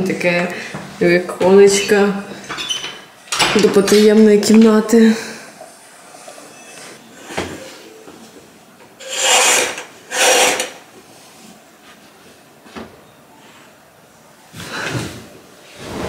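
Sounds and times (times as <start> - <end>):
curtains swishing along rail: 15.7 - 16.0.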